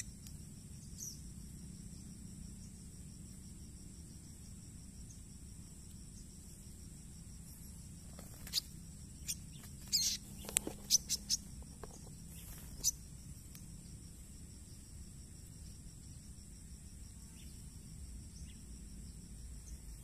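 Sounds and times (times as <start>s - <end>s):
high insect buzz: 0.0s - 20.0s
small bird sharp high calls: 0.9s - 1.2s, 8.1s - 13.0s.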